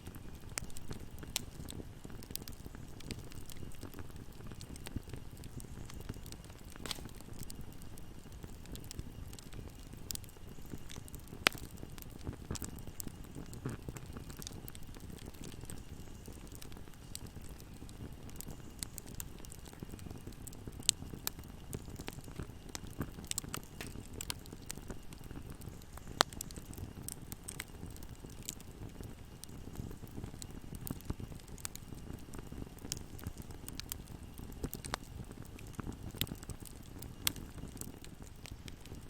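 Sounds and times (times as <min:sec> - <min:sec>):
fire crackling and popping: 0:00.0 - 0:39.0
fire flames rumbling: 0:00.0 - 0:39.0
loud wood snaps: 0:06.8 - 0:07.2.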